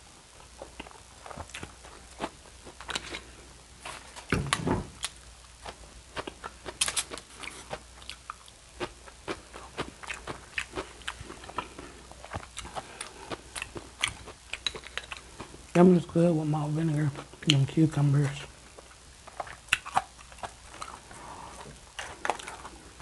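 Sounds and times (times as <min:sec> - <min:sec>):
chewing with mouth clicks: 0:00.6 - 0:03.4, 0:05.0 - 0:15.6, 0:18.7 - 0:23.0.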